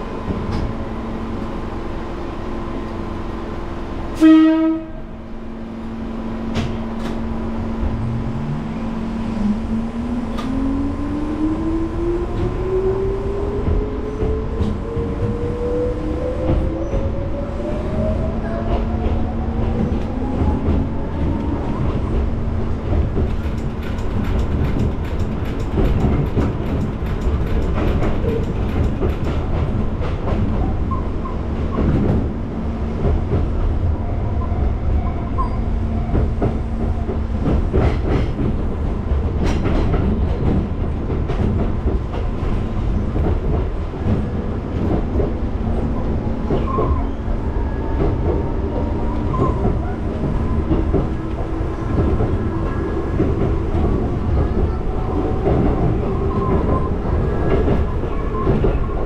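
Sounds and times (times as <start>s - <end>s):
train wheels rumbling on rail: 0.0s - 59.0s
clacks over rail joints: 18.5s - 32.3s, 36.0s - 47.1s, 47.9s - 59.0s.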